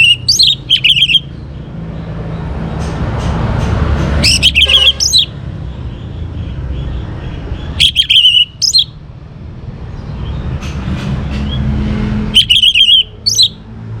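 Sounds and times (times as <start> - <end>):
thrush singing: 7.8 - 9.0, 12.3 - 13.6.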